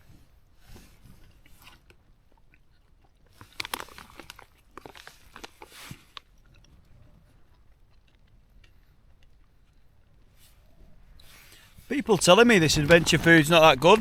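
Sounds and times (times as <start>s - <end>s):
person chewing: 1.2s - 10.0s.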